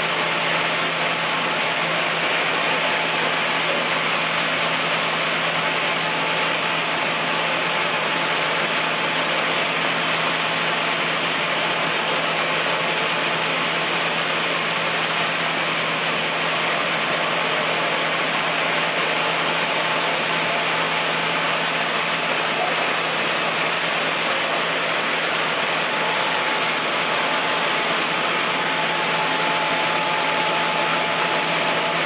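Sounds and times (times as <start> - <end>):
chainsaw engine running: 14.6 - 32.0.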